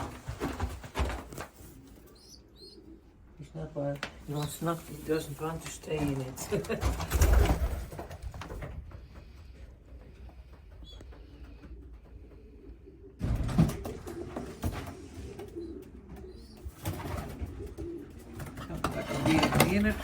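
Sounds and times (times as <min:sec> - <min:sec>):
rustling and knocking: 0:00.0 - 0:02.1
pigeons cooing: 0:00.0 - 0:03.4, 0:04.1 - 0:20.0.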